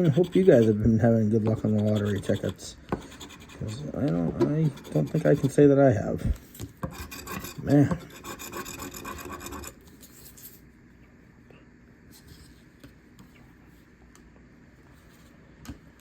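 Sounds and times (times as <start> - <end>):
metal scraping lottery ticket: 0.0 - 3.9, 4.6 - 5.6.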